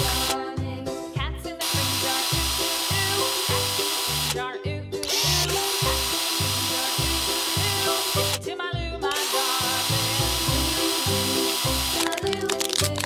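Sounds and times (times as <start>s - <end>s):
cartoon power drill buzz: 0.0s - 0.4s, 1.6s - 4.4s, 5.0s - 8.4s, 9.1s - 12.3s.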